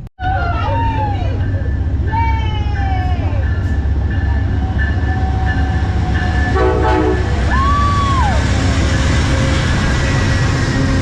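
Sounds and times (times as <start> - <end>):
train rumbling: 0.0 - 11.0
train horn blast: 6.4 - 7.5.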